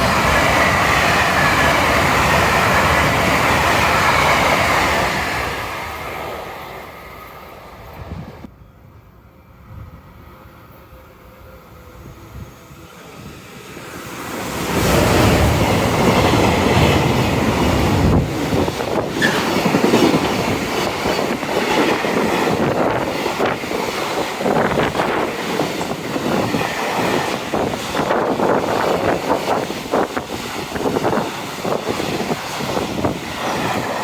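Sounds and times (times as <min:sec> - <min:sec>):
train passing: 0:00.0 - 0:34.0
wheels clacking over rail joints: 0:14.6 - 0:34.0.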